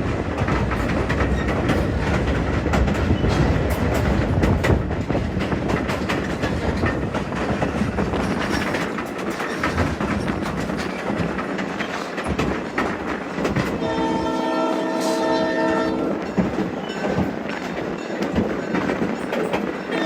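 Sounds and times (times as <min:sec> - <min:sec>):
train rumbling on track: 0:00.0 - 0:20.0
locomotive horn chord: 0:13.8 - 0:16.2.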